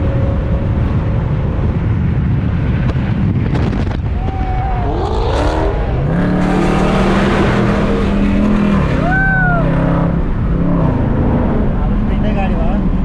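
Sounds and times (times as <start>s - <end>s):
car engine accelerating: 0.0s - 13.0s
road noise: 0.0s - 13.0s
wind noise: 0.0s - 13.0s
rising and falling tone: 3.8s - 11.7s.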